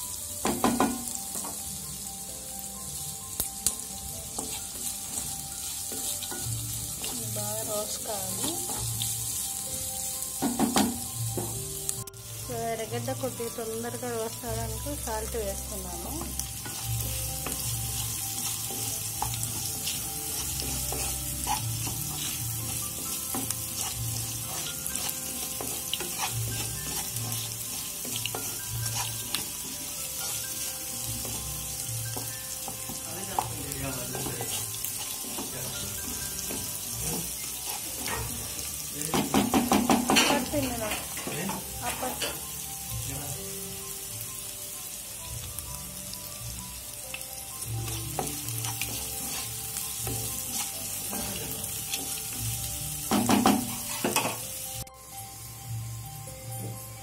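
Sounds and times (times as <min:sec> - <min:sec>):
onions sizzling in hot oil: 0:00.0 - 0:57.0
wooden spatula scraping a pan: 0:17.4 - 0:30.6, 0:32.9 - 0:38.5, 0:47.9 - 0:52.2.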